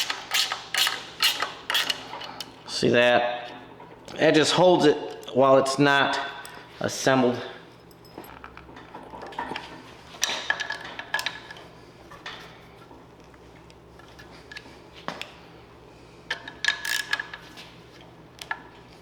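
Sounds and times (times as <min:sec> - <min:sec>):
metal tools clinking and rattling: 0:07.8 - 0:12.4.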